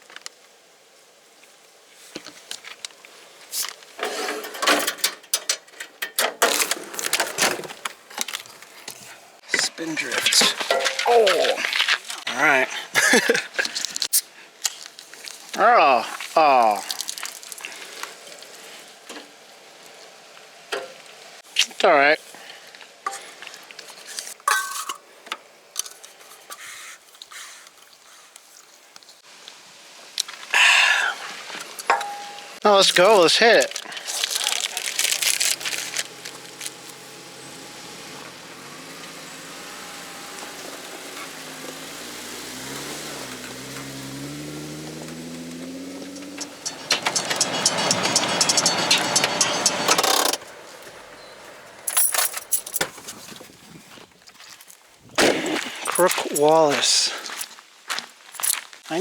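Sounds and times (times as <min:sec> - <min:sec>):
objects being rummaged through: 0:03.6 - 0:09.2, 0:10.2 - 0:12.2, 0:33.6 - 0:36.8.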